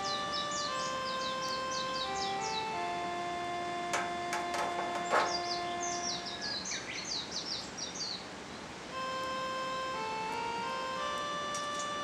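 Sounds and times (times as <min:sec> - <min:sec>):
small bird chirping: 0:00.0 - 0:03.0, 0:03.8 - 0:08.7, 0:11.0 - 0:12.0
slow melody of held notes: 0:00.0 - 0:06.6, 0:08.9 - 0:12.0.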